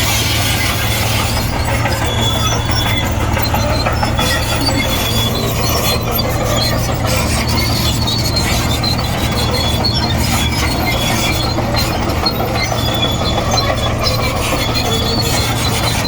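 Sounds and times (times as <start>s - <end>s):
bulldozer diesel engine droning: 0.0s - 16.0s
steel tracks squealing: 0.0s - 16.0s.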